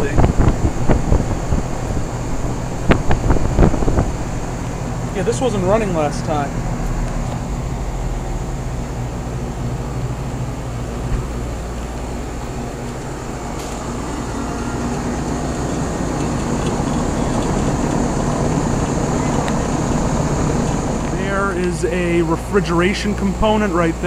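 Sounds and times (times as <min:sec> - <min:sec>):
compressor hum: 0:00.0 - 0:24.0
condenser fans rushing: 0:00.0 - 0:24.0.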